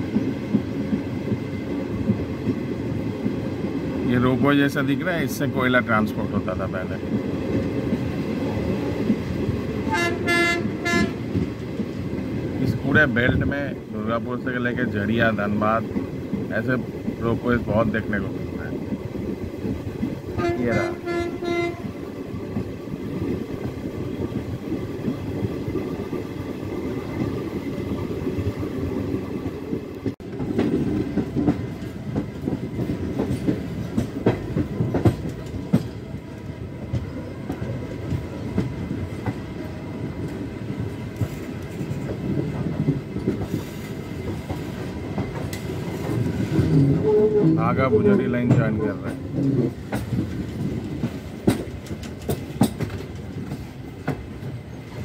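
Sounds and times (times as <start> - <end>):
train coaches rumbling: 0.0 - 55.0
wheel clicks over rail joints: 48.2 - 54.5.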